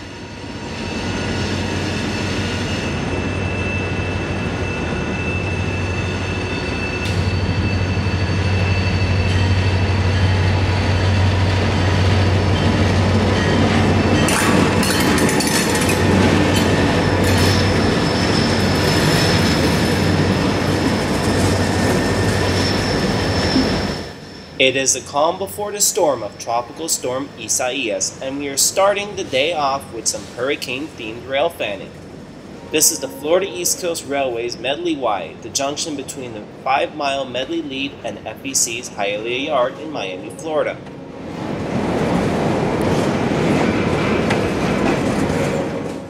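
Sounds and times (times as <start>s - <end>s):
steel wheels squealing: 0.0s - 31.5s
train wheels rumbling: 0.0s - 46.0s
wheels clicking over rail joints: 14.1s - 17.5s.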